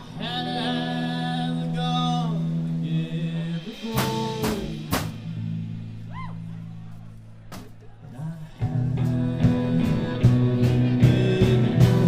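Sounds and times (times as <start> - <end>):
person singing long line: 0.0 - 5.2, 8.0 - 12.0
live band accompaniment: 0.0 - 12.0.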